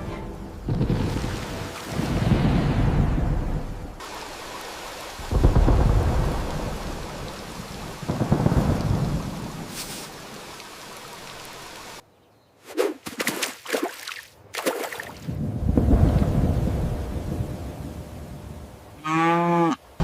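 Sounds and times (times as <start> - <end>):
thunder rolling: 0.7 - 3.8, 5.2 - 7.3, 7.9 - 9.7
steady rain: 0.7 - 12.0, 15.4 - 20.0.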